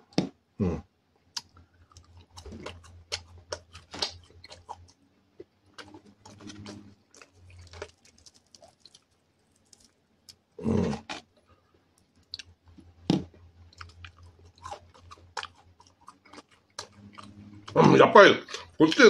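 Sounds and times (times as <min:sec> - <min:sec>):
person crunching fried food: 0:01.4 - 0:11.4, 0:12.0 - 0:17.8
soft mouth sounds: 0:05.8 - 0:11.3.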